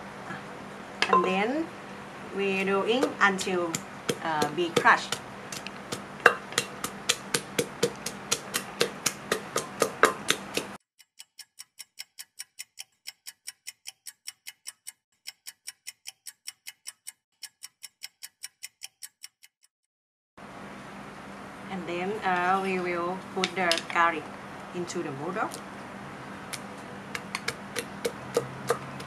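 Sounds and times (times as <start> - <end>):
sharp evenly spaced ticks: 1.5 - 19.7, 25.4 - 29.0
pestle pounding in clay mortar: 2.6 - 10.8, 27.1 - 29.0.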